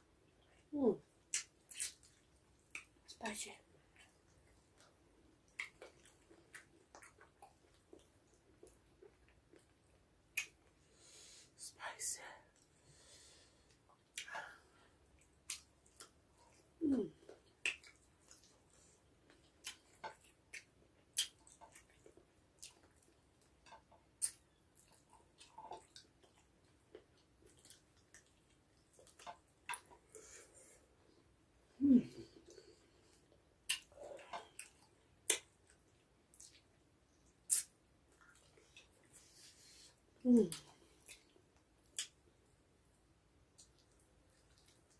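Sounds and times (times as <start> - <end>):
chewing: 3.9 - 10.6, 15.2 - 30.9, 32.2 - 42.2, 43.5 - 44.9
person humming: 16.8 - 17.2, 31.8 - 32.4, 40.2 - 40.6
chewing and sucking sounds: 32.4 - 42.2, 43.6 - 44.9
sharp mouth clicks: 37.5 - 37.7.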